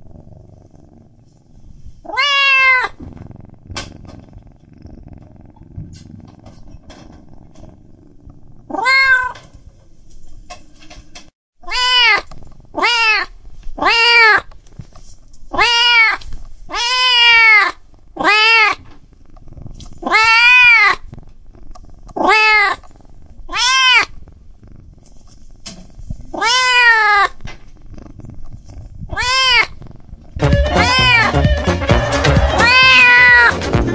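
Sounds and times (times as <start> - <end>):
low quiet purring: 0.0 - 2.1, 2.9 - 11.3, 18.8 - 20.1, 20.9 - 26.4, 27.3 - 30.4
kitten mewing: 2.0 - 7.6, 8.7 - 9.4, 11.6 - 14.5, 15.5 - 18.8, 20.0 - 22.8, 23.4 - 24.3, 25.6 - 31.3, 32.4 - 33.6.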